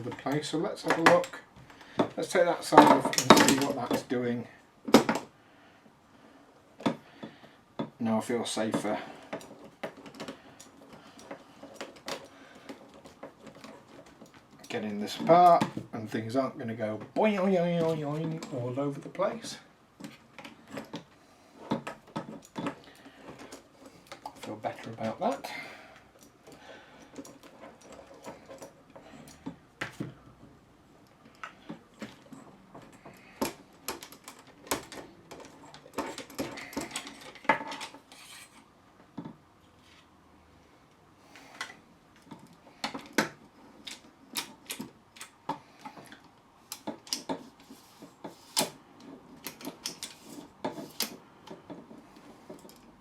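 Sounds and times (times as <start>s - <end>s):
suitcase handle parts clicking: 31.0s - 38.4s, 41.5s - 47.6s, 48.6s - 53.0s.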